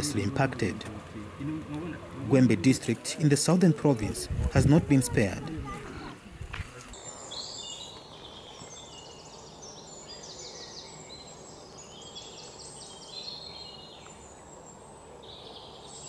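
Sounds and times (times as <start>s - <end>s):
steady background hiss: 0.0s - 16.0s
birds chirping and trilling: 6.9s - 16.0s.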